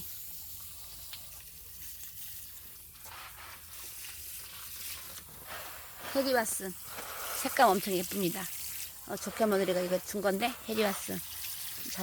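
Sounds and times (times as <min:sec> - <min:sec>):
shower spray hissing: 0:00.0 - 0:12.0.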